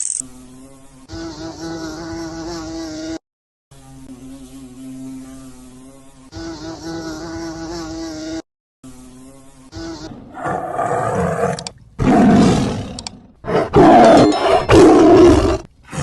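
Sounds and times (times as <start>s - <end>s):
flying insect buzzing: 0.0s - 11.8s.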